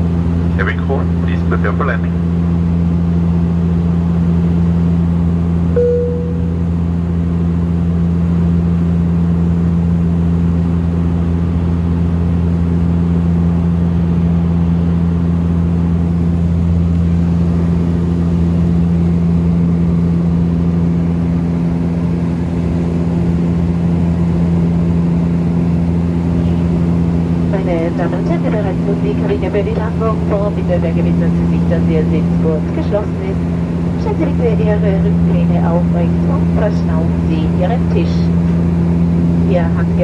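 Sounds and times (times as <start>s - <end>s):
turboprop cabin drone: 0.0s - 40.0s
short tone: 5.8s - 7.0s.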